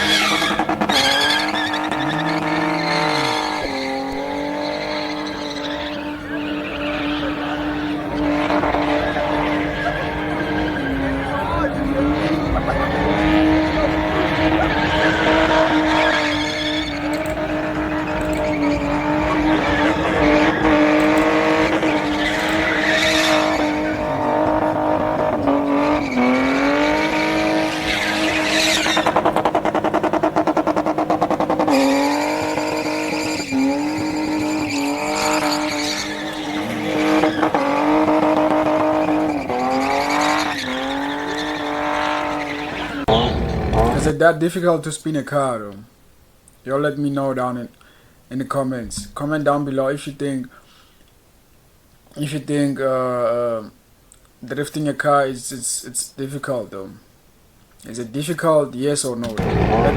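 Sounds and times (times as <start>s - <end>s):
sports car engine high revs: 0.0s - 44.2s, 59.2s - 59.9s
tyres squealing: 0.0s - 44.2s, 59.1s - 59.9s.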